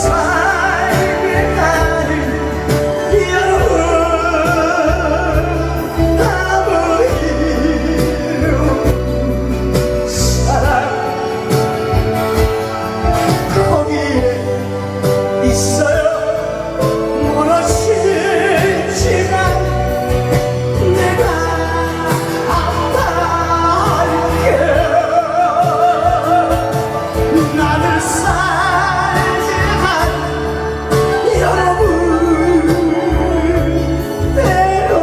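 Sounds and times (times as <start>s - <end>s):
amplified backing music: 0.0s - 35.0s
person singing with vibrato: 0.0s - 35.0s.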